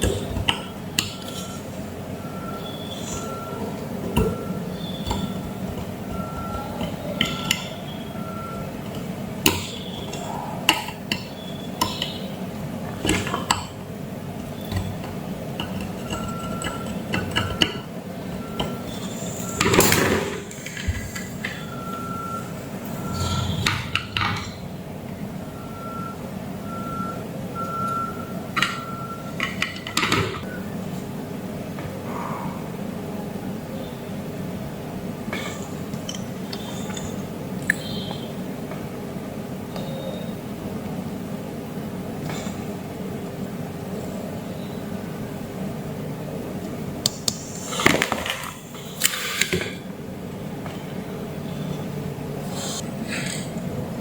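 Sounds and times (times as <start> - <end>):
multimeter continuity beeps: 1.1 - 8.8, 21.4 - 23.7, 25.5 - 29.4.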